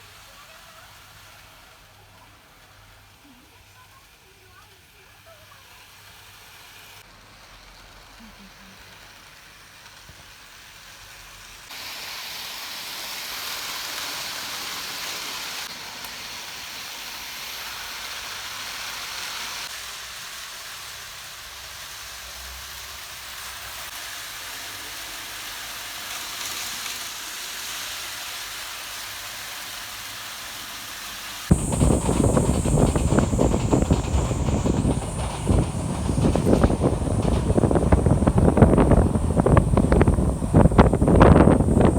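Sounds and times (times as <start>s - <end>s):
steady hiss: 0.0s - 41.9s
model train clattering past: 7.0s - 29.1s, 31.1s - 41.9s.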